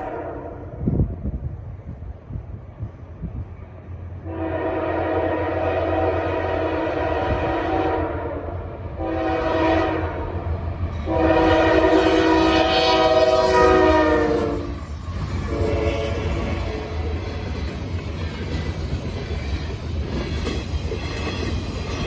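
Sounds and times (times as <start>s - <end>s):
locomotive air horn blasts: 0.0s - 0.8s, 4.2s - 14.8s, 15.5s - 16.9s.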